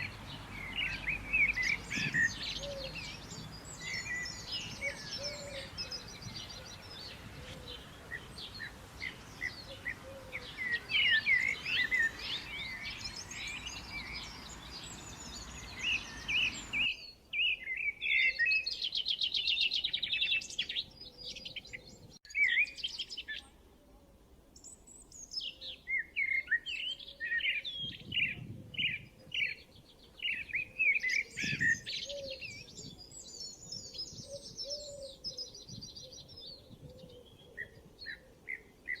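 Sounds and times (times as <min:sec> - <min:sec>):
background hiss: 0:00.0 - 0:17.0
songbirds chirping and trilling: 0:00.0 - 0:39.0.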